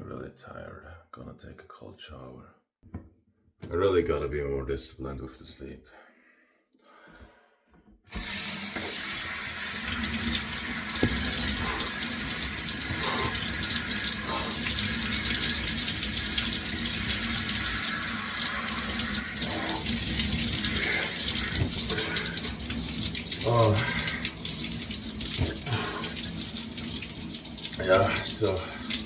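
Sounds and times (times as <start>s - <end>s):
shower water spraying: 8.1s - 29.0s.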